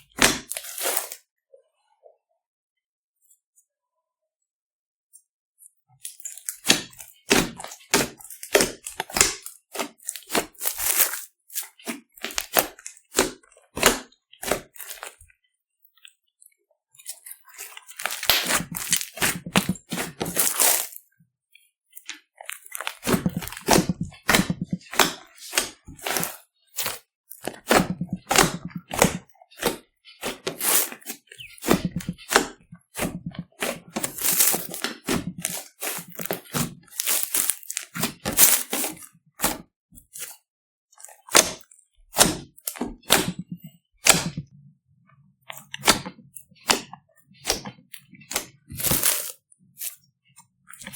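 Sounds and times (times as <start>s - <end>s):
slime squished by hand: 6.1s - 15.2s, 17.0s - 21.0s, 22.4s - 39.6s, 45.6s - 50.0s.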